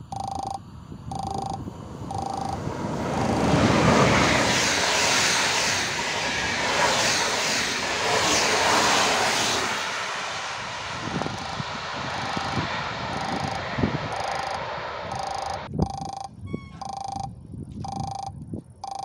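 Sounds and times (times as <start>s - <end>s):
train passing with rushing noise: 0.9s - 15.7s.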